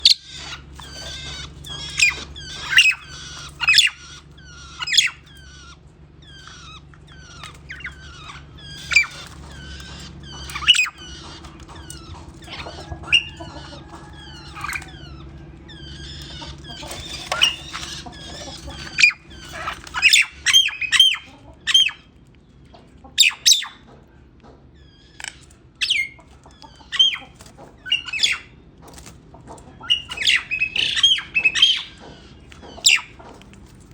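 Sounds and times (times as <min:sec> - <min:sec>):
songbirds chirping: 0:00.0 - 0:33.9
steady low hum: 0:00.0 - 0:33.9.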